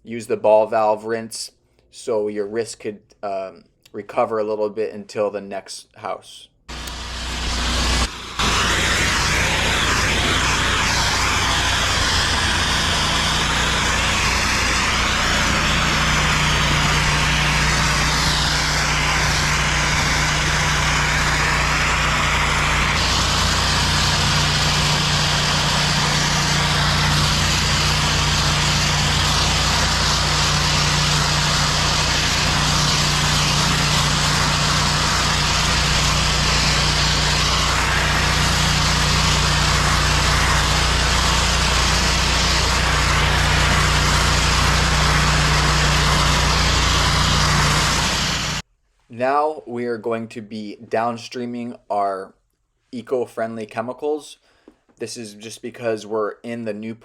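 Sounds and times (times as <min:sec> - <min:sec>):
pressure washer engine hum: 0:06.7 - 0:48.6
water jet hissing on pavement: 0:06.7 - 0:48.6.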